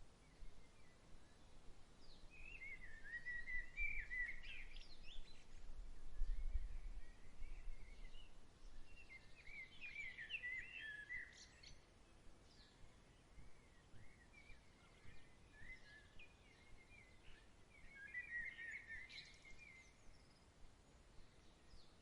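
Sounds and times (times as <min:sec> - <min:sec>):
low rumble of breeze: 0:00.0 - 0:22.0.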